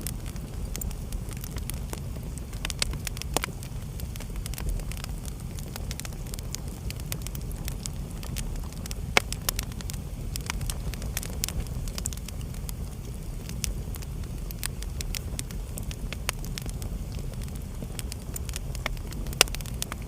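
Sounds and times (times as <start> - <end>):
fire crackling and popping: 0.0 - 20.0
low rumble of flames: 0.0 - 20.0.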